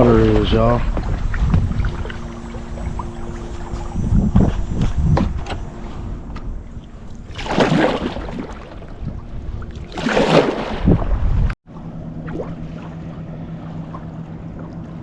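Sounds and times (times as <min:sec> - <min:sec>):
kayak paddle splashing water: 0:06.8 - 0:11.2.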